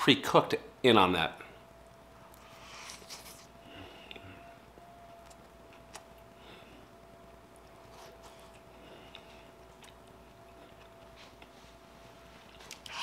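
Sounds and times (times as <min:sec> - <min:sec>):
faint steady hum: 0:00.0 - 0:13.0
faint chewing: 0:07.5 - 0:13.0.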